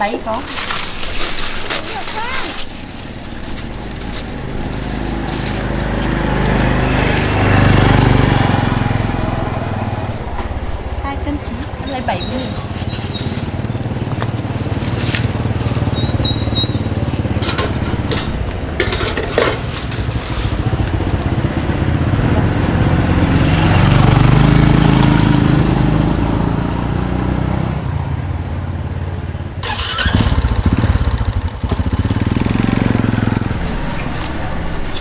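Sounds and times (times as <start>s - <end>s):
small motorcycle engine running: 1.8s - 35.0s.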